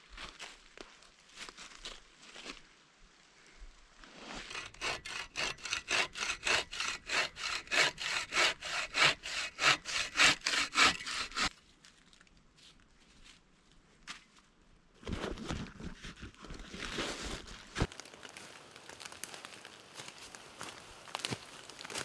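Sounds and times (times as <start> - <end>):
hand saw cutting wood: 4.2 - 11.5, 20.0 - 22.0.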